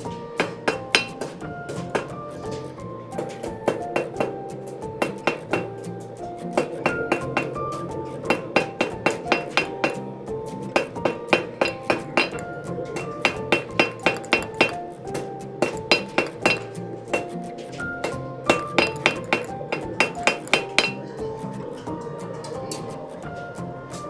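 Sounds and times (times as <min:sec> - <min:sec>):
hammer ringing on steel anvil: 0:00.4 - 0:01.3, 0:03.7 - 0:04.4, 0:05.0 - 0:05.8, 0:06.6 - 0:07.6, 0:08.3 - 0:10.0, 0:10.8 - 0:14.8, 0:15.6 - 0:17.4, 0:18.0 - 0:21.0.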